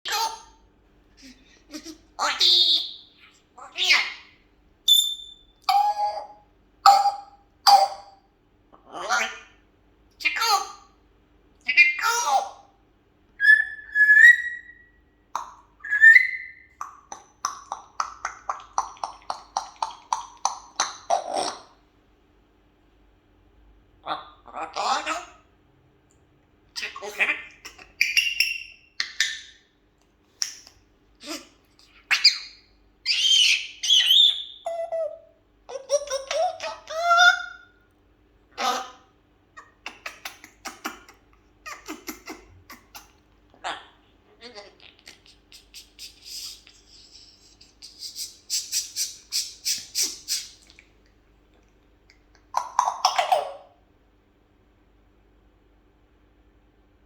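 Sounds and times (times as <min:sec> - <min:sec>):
parrot whistled calls: 0:04.9 - 0:08.1, 0:13.4 - 0:15.0, 0:15.8 - 0:16.8, 0:28.0 - 0:29.5, 0:32.1 - 0:35.2.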